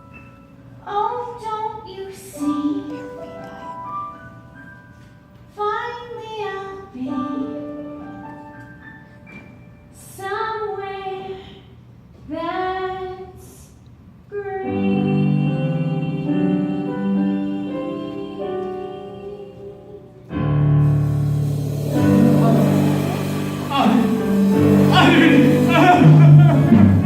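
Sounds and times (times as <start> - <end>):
woman singing a slow ballad: 0.8 - 3.2, 14.3 - 20.3
keyboard accompaniment: 14.7 - 27.0.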